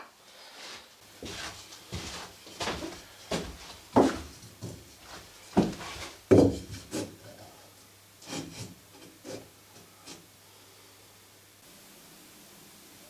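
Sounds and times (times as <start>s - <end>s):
faint steady hum: 0.0s - 13.0s
knocks and scrapes: 1.2s - 7.2s, 8.2s - 9.5s.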